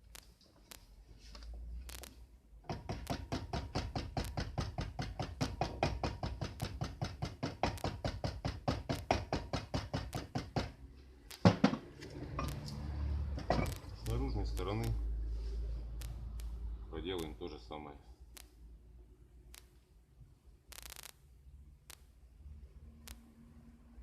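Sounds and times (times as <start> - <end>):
rapid hammer taps: 2.6 - 11.8.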